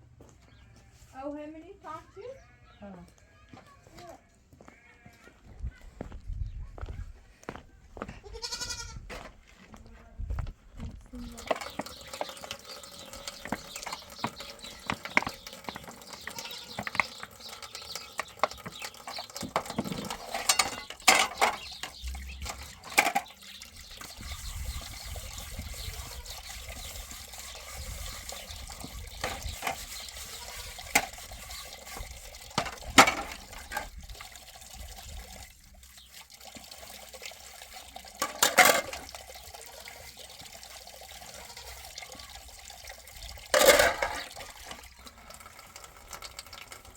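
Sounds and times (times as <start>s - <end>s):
water splashing and pouring: 11.2s - 46.9s.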